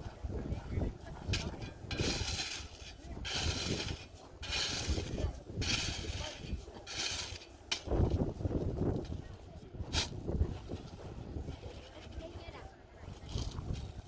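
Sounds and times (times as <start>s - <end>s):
shovel scraping into ash: 1.0s - 8.3s, 9.9s - 10.8s.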